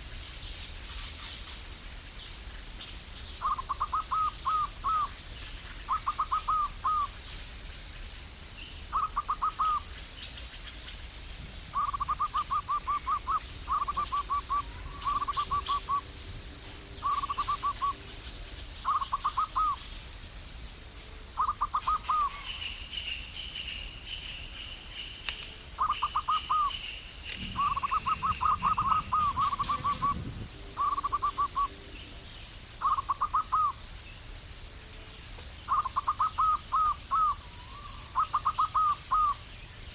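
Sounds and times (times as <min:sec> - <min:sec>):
insect trill: 0:00.0 - 0:39.9
bird calling in quick bursts: 0:27.5 - 0:30.2.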